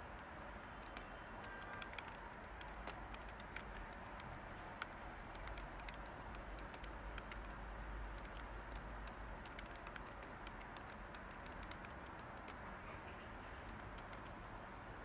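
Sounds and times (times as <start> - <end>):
steady white-noise hiss: 0.0 - 15.0
typing on computer keyboard: 0.1 - 12.6, 13.6 - 14.4.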